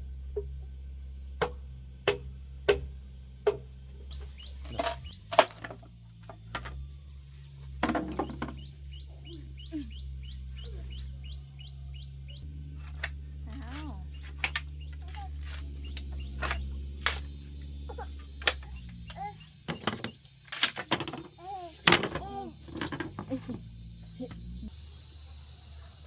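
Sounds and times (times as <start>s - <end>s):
sharp knocks on wood: 1.4s - 4.3s.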